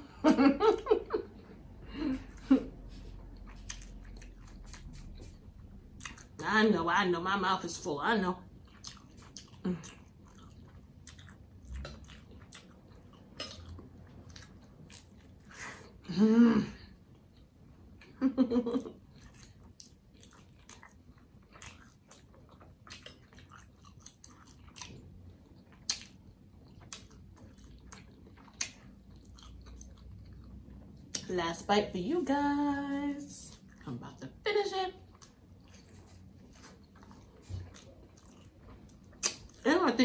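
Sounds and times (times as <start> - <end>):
close chewing with mouth clicks: 2.3 - 6.6, 8.5 - 16.0, 18.9 - 31.3, 33.4 - 34.2, 35.0 - 39.7.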